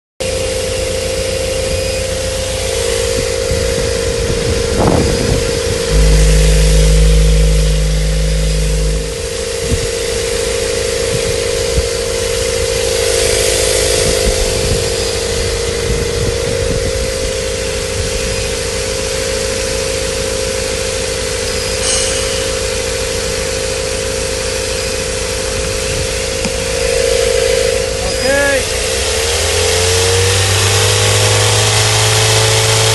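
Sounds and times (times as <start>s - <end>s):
car engine revving: 5.9s - 9.6s.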